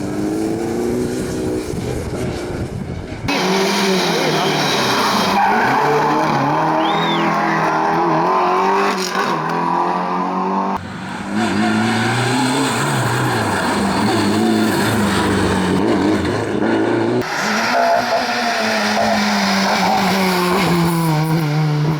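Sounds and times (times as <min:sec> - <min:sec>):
rally car engines revving: 0:00.0 - 0:21.9.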